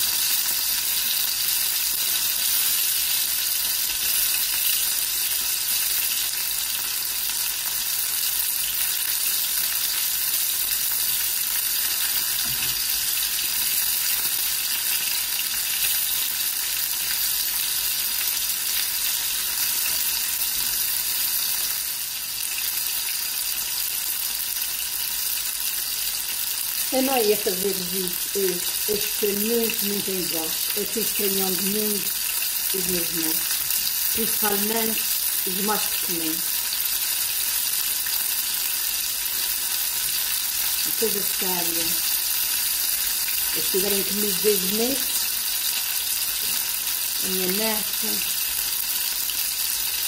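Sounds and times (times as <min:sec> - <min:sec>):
chicken sizzling in hot oil: 0:00.0 - 0:50.0.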